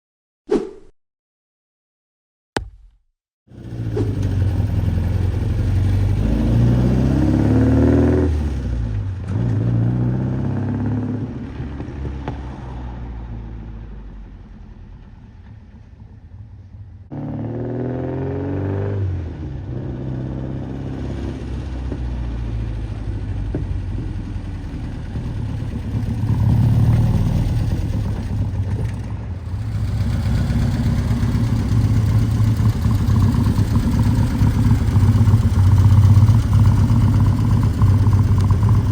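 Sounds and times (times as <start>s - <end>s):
car engine revving and idling: 3.5s - 12.4s, 17.1s - 38.9s.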